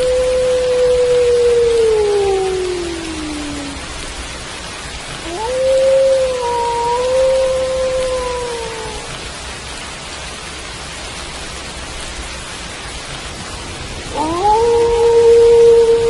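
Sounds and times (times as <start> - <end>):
wolf howling: 0.0 - 3.9, 5.2 - 9.1, 14.1 - 16.0
steady rain: 0.0 - 16.0.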